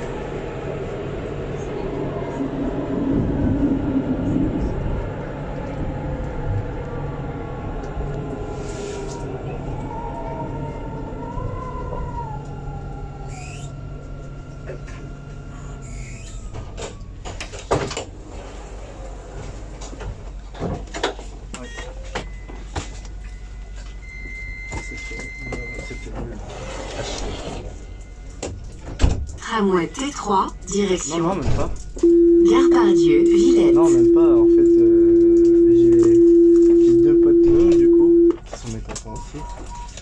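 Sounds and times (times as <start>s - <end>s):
tram motor whine: 0.0s - 20.5s, 21.8s - 39.2s
steady electronic tone: 32.0s - 38.4s.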